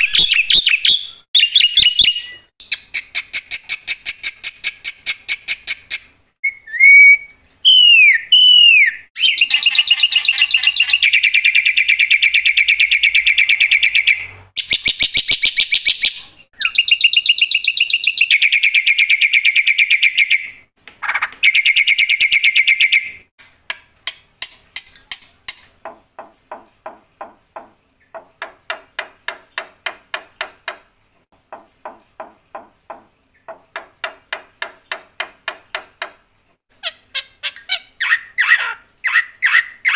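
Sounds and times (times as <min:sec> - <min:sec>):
myna whistling and trilling: 0:06.4 - 0:11.3.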